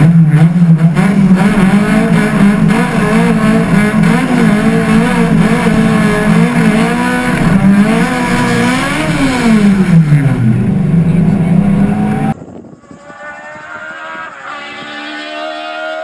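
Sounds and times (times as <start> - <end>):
race car engine revving: 0.0 - 12.4.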